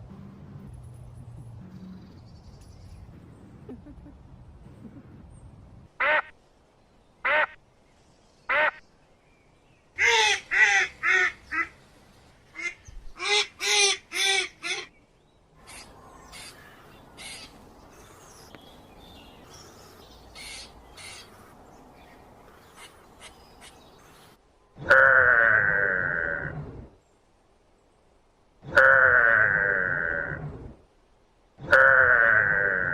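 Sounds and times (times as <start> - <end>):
low background hiss: 0.0 - 25.1, 26.9 - 32.0
bird calling harshly: 15.6 - 18.4, 19.5 - 21.5.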